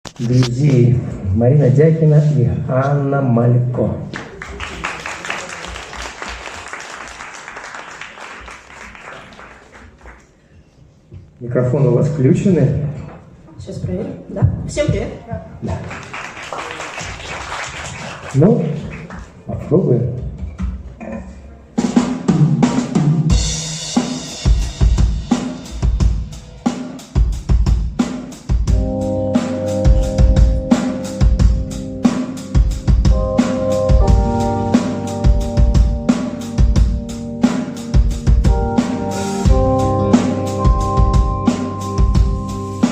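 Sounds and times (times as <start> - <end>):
audience applauding: 4.1 - 10.4, 15.6 - 19.5
drum kit beat: 21.8 - 42.9
held keyboard chords: 27.2 - 42.9.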